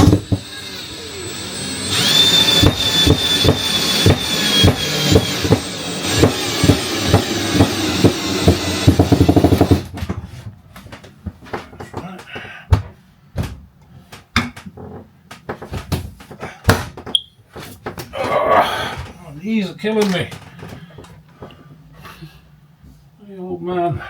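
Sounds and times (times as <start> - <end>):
drill motor whining: 0.0 - 9.8
knocks: 2.6 - 10.2.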